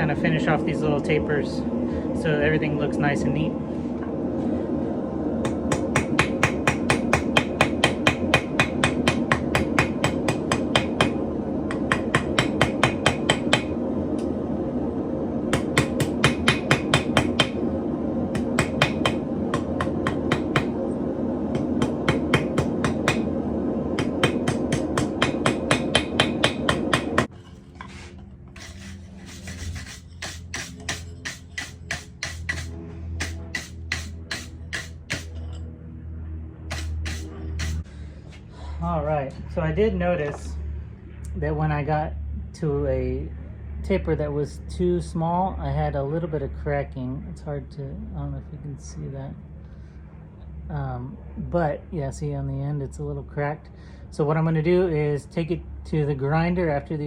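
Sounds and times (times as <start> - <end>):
steady rushing background: 0.1 - 41.2
hammer blows on steel rod: 29.4 - 35.4.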